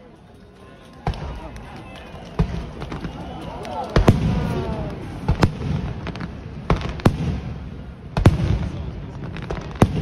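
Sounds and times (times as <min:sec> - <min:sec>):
fireworks bangs: 0:00.6 - 0:10.0.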